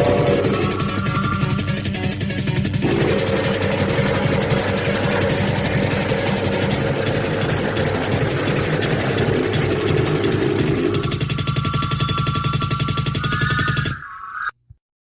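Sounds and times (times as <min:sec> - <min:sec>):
distorted buzzing noise music: 0:00.0 - 0:14.1
droning tone: 0:00.0 - 0:14.4.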